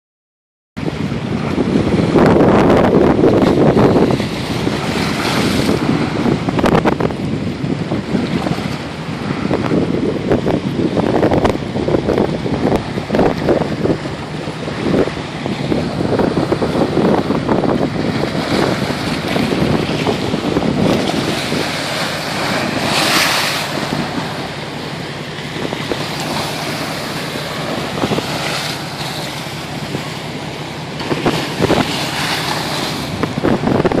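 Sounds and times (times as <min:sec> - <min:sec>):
waves crashing on embankment: 0:00.8 - 0:34.0
wind buffeting microphone: 0:00.8 - 0:34.0.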